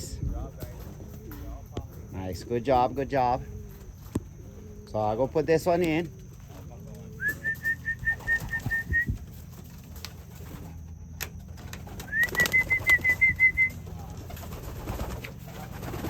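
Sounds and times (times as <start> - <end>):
pigeons cooing: 0.0 - 16.0
high fluttering whistle: 7.2 - 9.2, 12.0 - 13.8.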